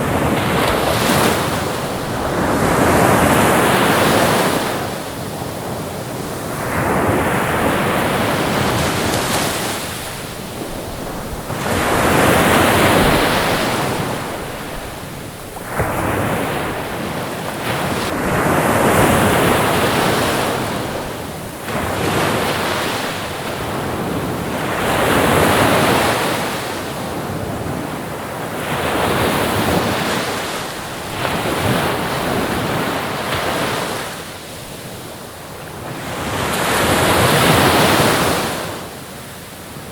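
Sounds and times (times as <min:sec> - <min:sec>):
ocean waves washing in: 0:00.0 - 0:26.8.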